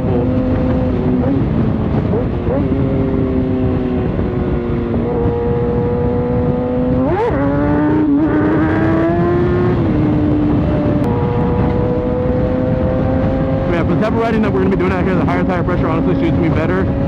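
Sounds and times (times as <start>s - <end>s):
motorcycle engine cruising: 0.0s - 17.0s
wind rush: 0.0s - 17.0s.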